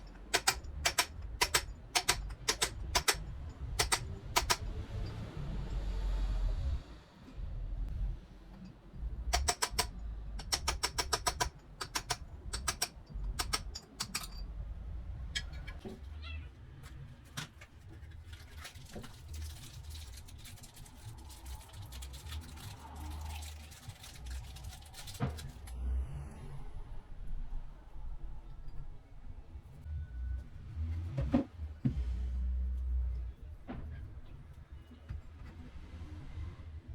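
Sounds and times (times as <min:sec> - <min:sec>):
hand tools clicking on metal: 0:00.0 - 0:04.6, 0:09.3 - 0:14.4
low rumble: 0:02.8 - 0:10.5, 0:19.9 - 0:36.9.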